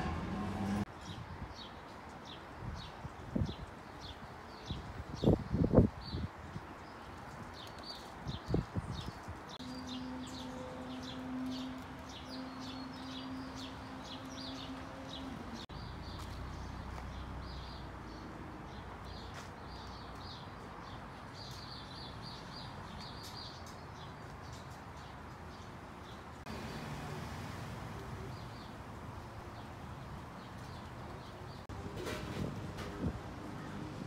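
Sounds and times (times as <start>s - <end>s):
steady outdoor hiss: 9.2s - 34.0s.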